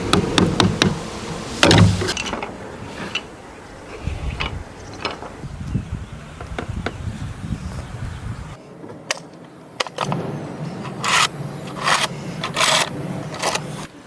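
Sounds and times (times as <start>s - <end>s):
hand tool scraping wood: 0.0s - 3.3s, 10.9s - 13.9s.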